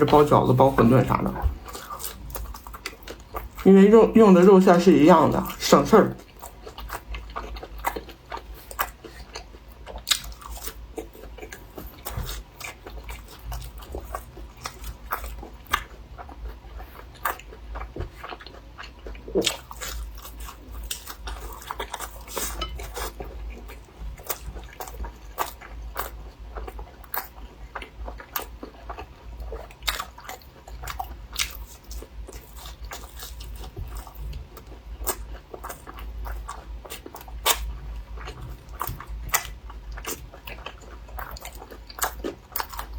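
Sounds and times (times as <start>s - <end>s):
low steady hum: 0.0s - 42.9s
crunching bites and chewing: 6.2s - 42.9s.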